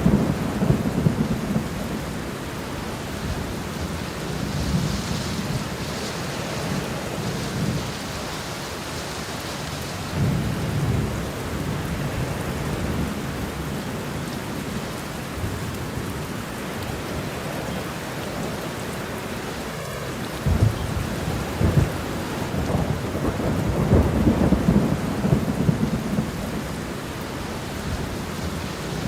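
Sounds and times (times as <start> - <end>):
rolling thunder: 0.0 - 8.1, 17.4 - 29.0
steady rain: 0.0 - 29.0.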